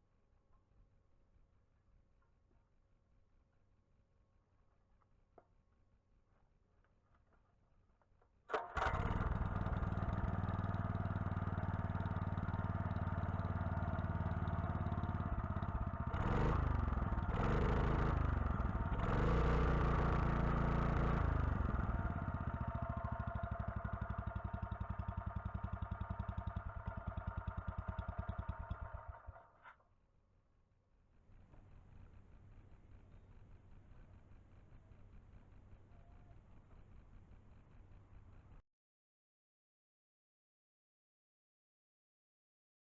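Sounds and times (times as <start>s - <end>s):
small engine running and revving: 8.8s - 29.4s.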